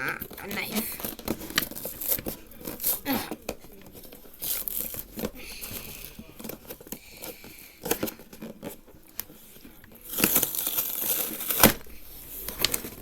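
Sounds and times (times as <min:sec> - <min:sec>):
cardboard box being torn open: 0:10.1 - 0:11.9.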